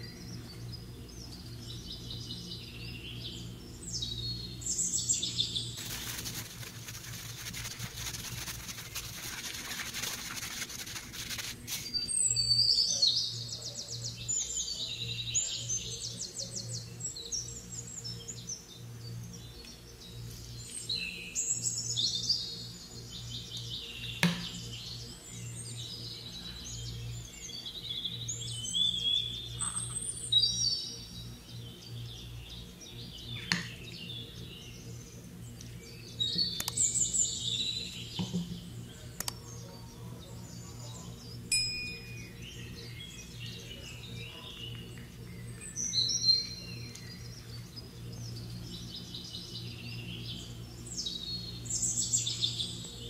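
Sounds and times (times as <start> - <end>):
birds chirping and singing: 0.0 - 53.0
steady low hum: 0.0 - 53.0
sharp clicks: 36.6 - 36.8, 39.2 - 39.4.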